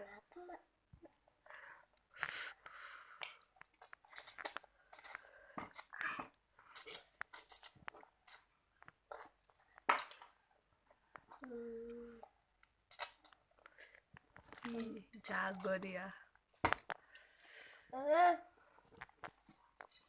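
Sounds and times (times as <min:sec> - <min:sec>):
child chewing noodles: 0:01.0 - 0:15.7.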